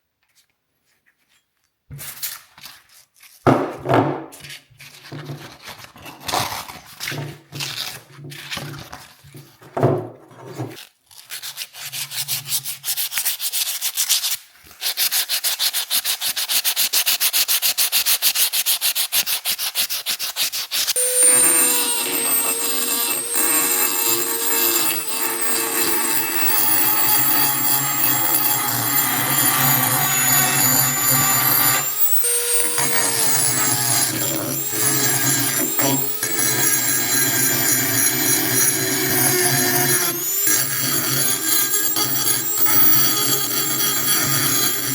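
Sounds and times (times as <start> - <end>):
power tool whining on metal: 21.0 - 44.9.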